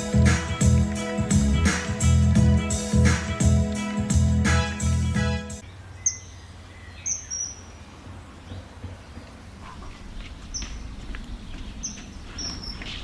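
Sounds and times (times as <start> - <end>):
bird chirping: 5.6 - 13.0.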